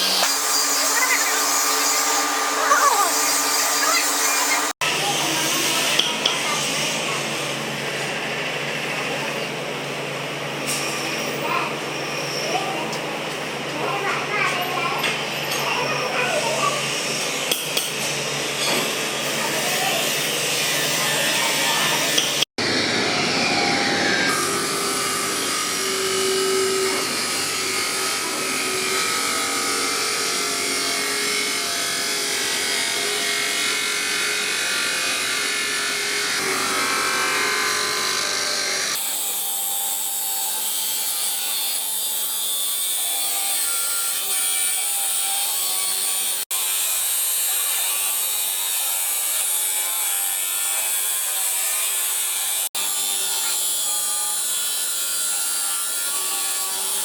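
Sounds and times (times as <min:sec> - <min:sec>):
power tools grinding steel: 0:00.0 - 0:08.4, 0:14.0 - 0:57.0.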